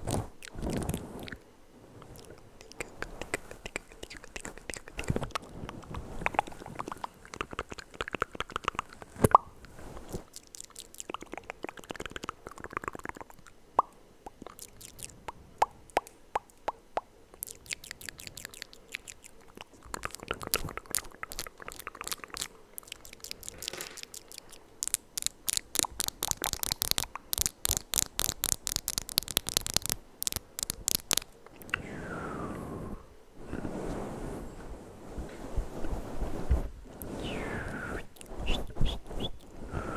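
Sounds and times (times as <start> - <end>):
wet mouth clicks and smacks: 2.1 - 9.5, 10.2 - 31.8.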